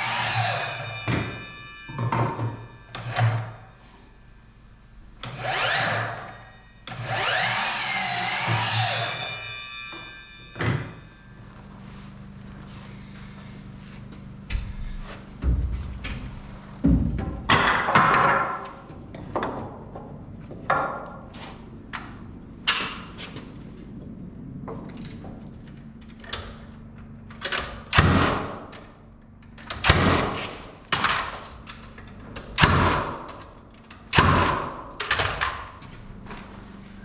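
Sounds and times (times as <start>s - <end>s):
heavy ringing thuds and knocks: 0.7s - 3.0s, 9.9s - 11.3s, 14.4s - 18.6s.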